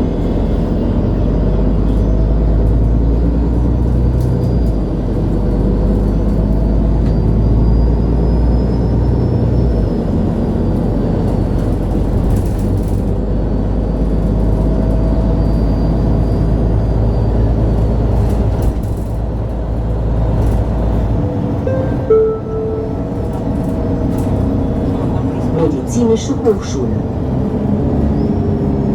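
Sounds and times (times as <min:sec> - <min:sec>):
bus diesel engine rumble: 0:00.0 - 0:28.9
two-note chime: 0:21.7 - 0:23.4.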